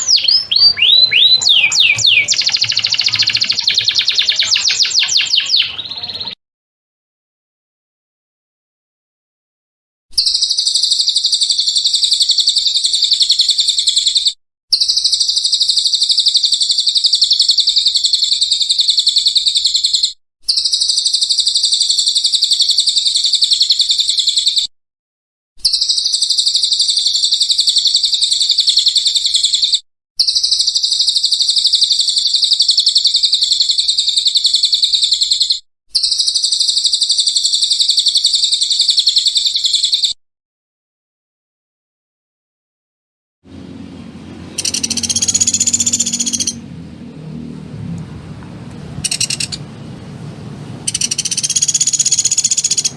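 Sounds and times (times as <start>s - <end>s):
songbird singing fast trills: 0.0s - 6.4s, 44.6s - 46.6s, 49.0s - 49.6s, 50.9s - 52.9s.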